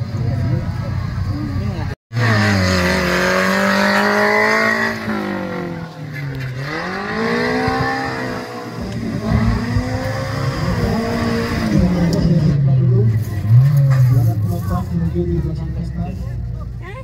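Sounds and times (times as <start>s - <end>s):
vehicle engine revving: 0.4s - 16.0s.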